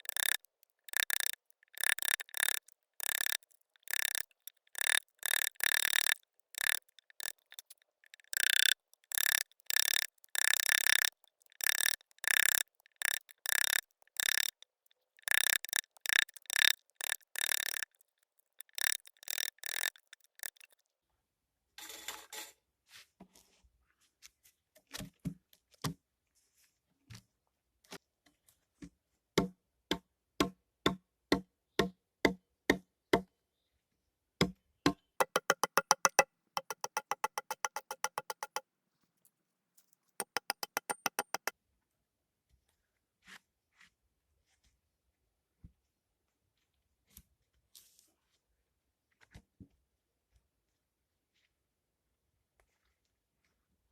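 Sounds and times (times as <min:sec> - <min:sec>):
fast tapping rattle: 0:00.0 - 0:14.6, 0:15.2 - 0:20.8, 0:35.2 - 0:38.6, 0:40.2 - 0:41.5
sharp knocks and taps: 0:00.0 - 0:14.6, 0:15.2 - 0:17.8, 0:18.6 - 0:20.7, 0:35.2 - 0:38.6, 0:40.2 - 0:41.5.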